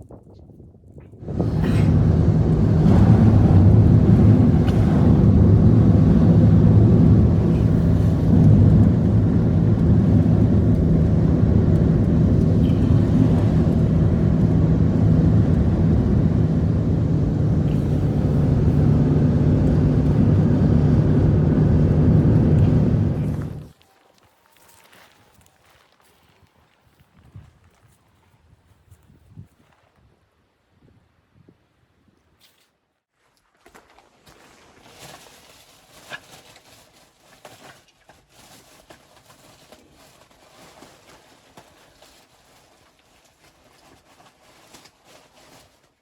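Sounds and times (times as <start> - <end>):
motor engine running: 1.2 - 23.7.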